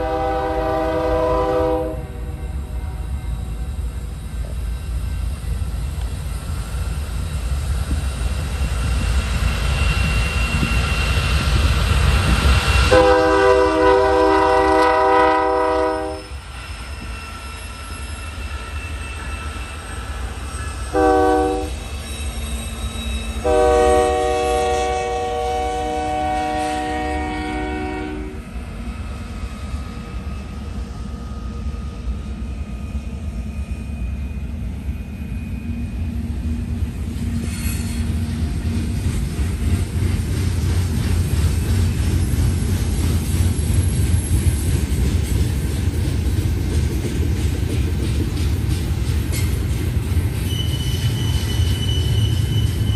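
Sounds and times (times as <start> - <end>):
locomotive air horn blasts: 0.0 - 3.0, 12.9 - 16.3, 20.9 - 21.8, 23.4 - 28.4
diesel locomotives rumbling: 0.0 - 52.9.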